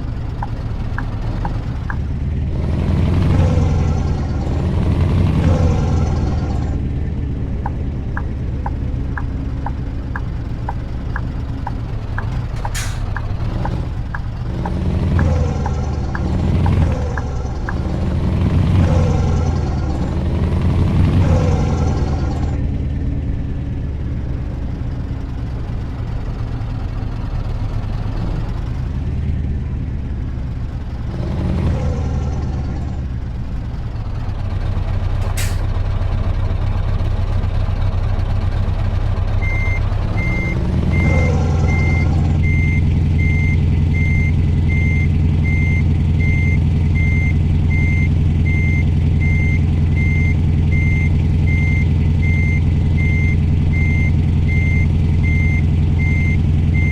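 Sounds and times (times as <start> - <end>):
diesel truck engine running: 0.0 - 56.9
reversing alarm beeping: 39.4 - 56.9.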